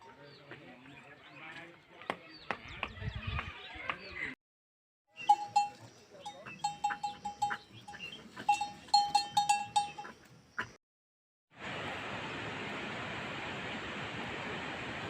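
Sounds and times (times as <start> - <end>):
livestock bells ringing: 5.2 - 10.2.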